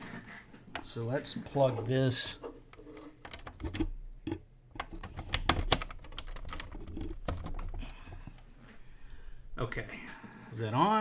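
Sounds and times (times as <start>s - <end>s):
plastic plug clicks and taps: 3.2s - 8.4s.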